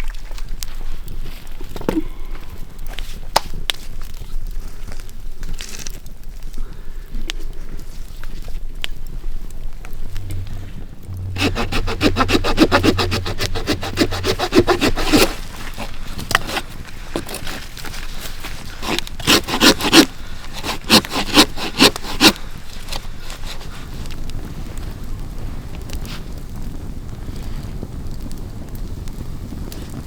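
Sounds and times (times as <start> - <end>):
hand tool scraping wood: 10.1 - 23.7.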